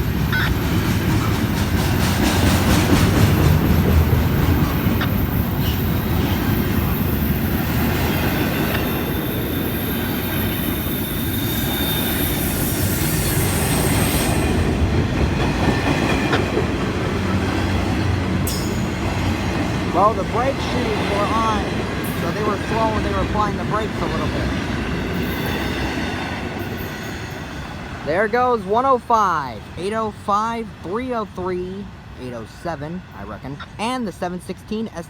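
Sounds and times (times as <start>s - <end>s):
freight train rolling past: 0.0s - 35.0s
train wheel and brake squeal: 4.8s - 14.6s, 25.2s - 27.8s.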